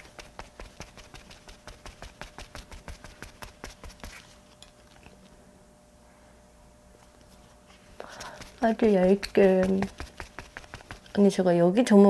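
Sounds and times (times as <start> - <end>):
makeup puff dabbing taps: 8.2 - 11.1.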